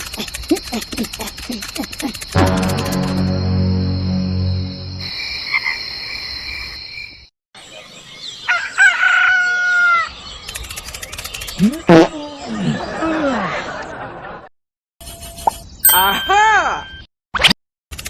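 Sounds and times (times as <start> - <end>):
rooster crowing: 8.5 - 10.1.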